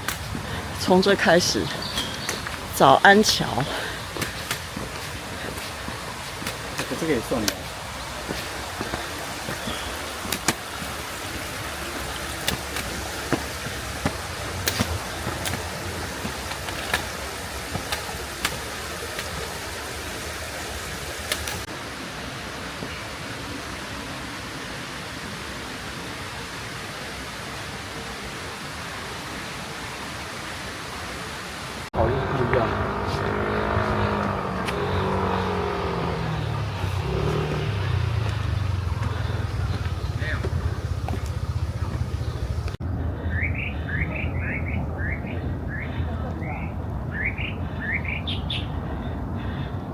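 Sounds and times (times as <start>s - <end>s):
steady rushing hiss: 0.0s - 27.4s, 32.7s - 42.8s
footstep clicks on stone stairs: 1.8s - 2.8s, 3.6s - 19.8s, 34.2s - 35.0s, 38.2s - 42.8s
vehicle engine humming: 2.0s - 21.7s, 32.0s - 42.9s.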